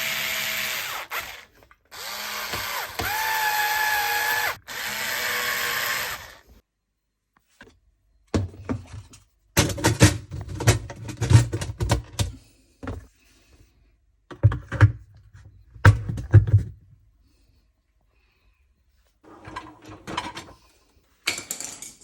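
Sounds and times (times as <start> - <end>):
hard parts clattering on dishwasher: 19.3 - 20.6, 21.3 - 22.0.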